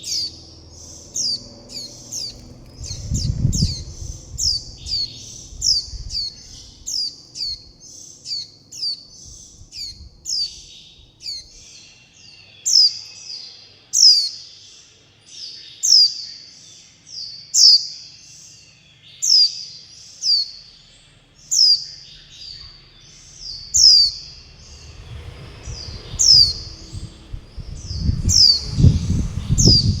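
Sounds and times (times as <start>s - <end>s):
fledgling bird begging calls: 0.0s - 11.6s, 21.5s - 24.8s
low rumble: 0.2s - 7.8s, 9.1s - 11.6s, 22.0s - 30.0s.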